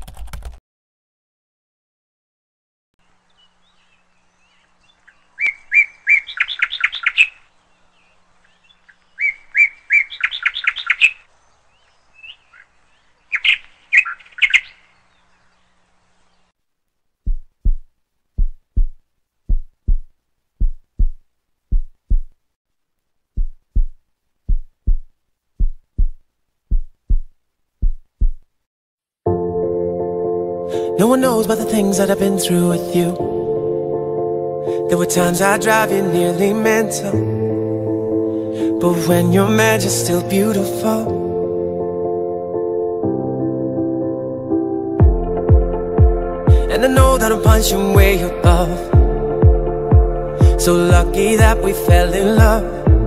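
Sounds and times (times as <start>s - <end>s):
songbird trilling: 3.3s - 16.5s
deep thumps in heartbeat rhythm: 17.2s - 22.4s, 23.3s - 28.4s, 45.0s - 53.0s.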